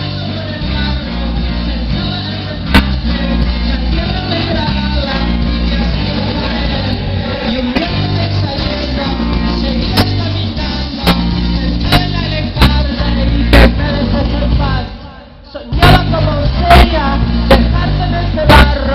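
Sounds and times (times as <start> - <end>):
rock band playing live: 0.0 - 18.9
band hitting hard accents: 2.7 - 3.1, 9.8 - 13.8.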